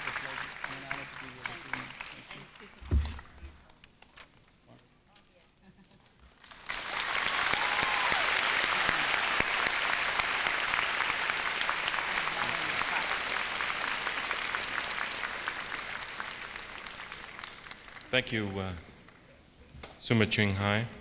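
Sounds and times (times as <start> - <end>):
audience applauding: 0.0 - 3.7, 6.0 - 19.2.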